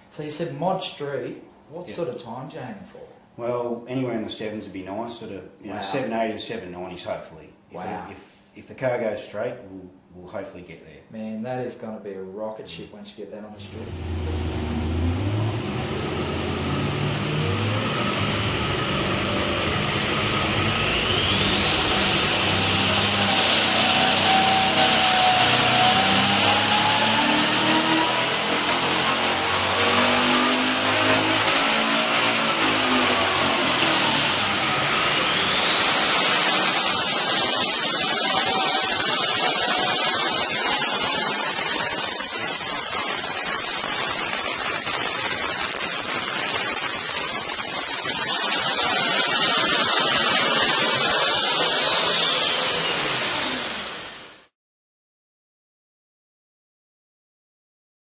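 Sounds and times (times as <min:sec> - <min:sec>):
engine under load: 0:13.6 - 0:54.2
high turbo whistle: 0:13.8 - 0:54.5.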